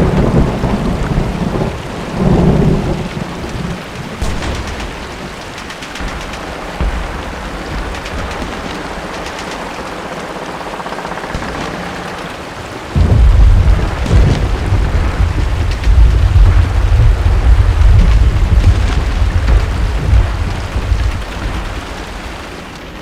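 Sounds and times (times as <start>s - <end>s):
deep rumble of thunder: 0.0s - 23.0s
steady rain hiss: 0.0s - 23.0s.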